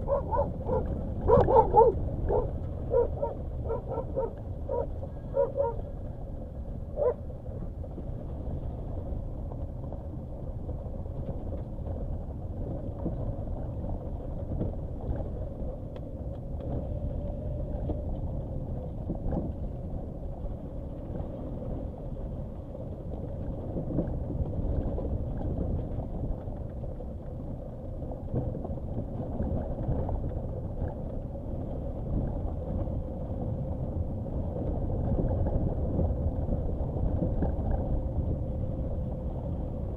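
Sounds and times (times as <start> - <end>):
dog barking: 0.0 - 5.8, 7.0 - 7.2
car rumbling over dirt track: 0.0 - 39.9.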